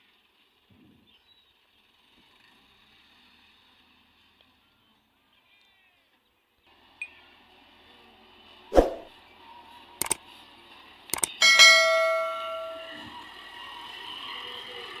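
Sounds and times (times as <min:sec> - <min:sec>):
sharp metal clinks: 0:11.2 - 0:13.1
metal strike ringing: 0:11.4 - 0:13.1.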